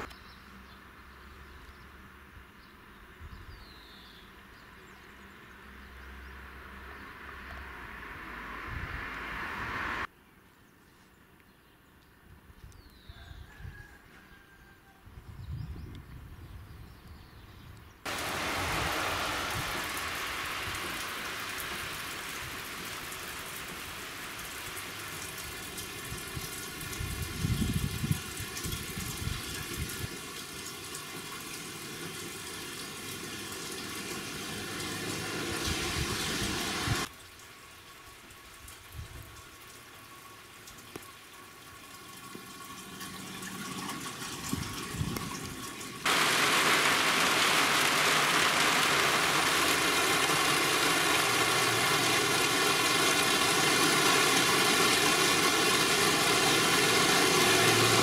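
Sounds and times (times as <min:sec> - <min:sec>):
rain on a corrugated roof: 0:00.0 - 0:01.2, 0:18.0 - 0:58.0.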